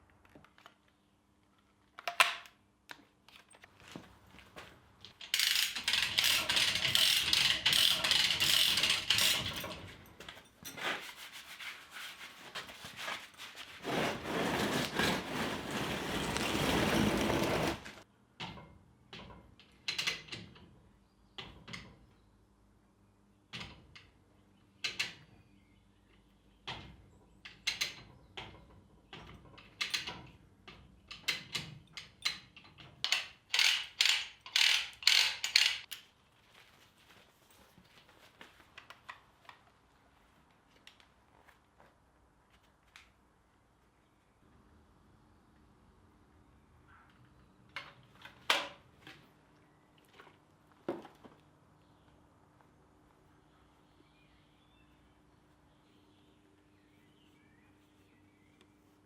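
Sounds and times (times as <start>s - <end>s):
caulking gun ratchet clicking: 5.2s - 9.5s, 33.5s - 35.9s
rubbing scraping noise: 10.8s - 18.0s.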